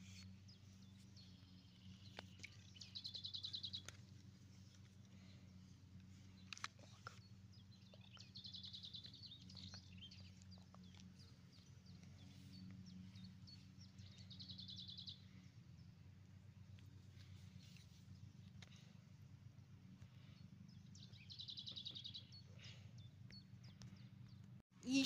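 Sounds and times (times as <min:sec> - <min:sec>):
low steady hum: 0:00.0 - 0:25.0
songbird trilling and chirping: 0:00.2 - 0:04.0, 0:07.1 - 0:15.4.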